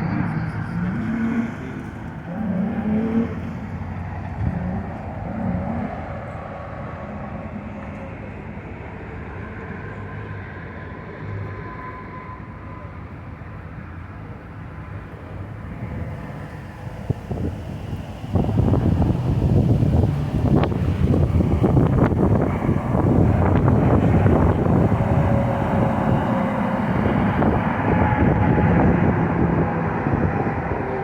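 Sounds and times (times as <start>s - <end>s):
low rumble of motor vehicles: 0.0s - 31.0s.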